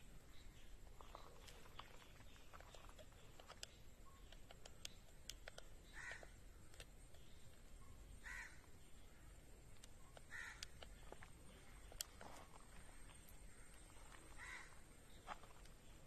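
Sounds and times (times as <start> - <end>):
faint bird calls: 0.0 - 16.0
faint clicks: 1.1 - 7.6.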